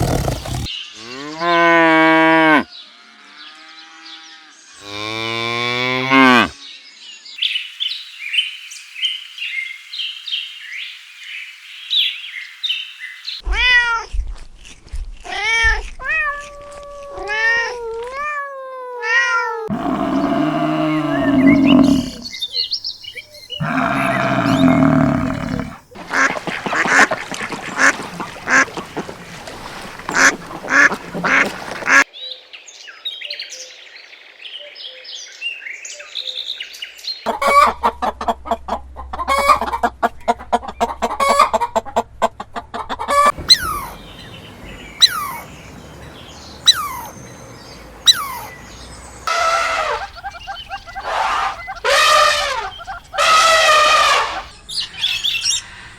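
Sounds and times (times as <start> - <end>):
falling bird calls: 19.7 - 32.0, 43.1 - 55.9
duck quacks: 30.2 - 32.0
high bird chirps: 43.4 - 51.9
goose honks: 49.3 - 50.2, 51.0 - 54.5.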